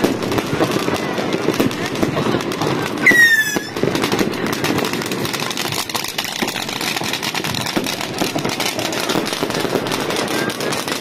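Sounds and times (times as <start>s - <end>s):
fireworks crackling: 0.0s - 11.0s
falling firework whistle: 3.0s - 3.9s.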